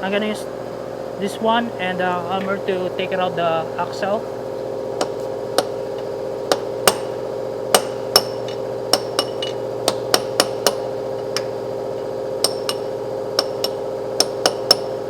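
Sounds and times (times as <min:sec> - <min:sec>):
steady hum: 0:00.0 - 0:15.0
hammer striking steel: 0:05.0 - 0:05.8, 0:06.5 - 0:11.6, 0:12.4 - 0:15.0.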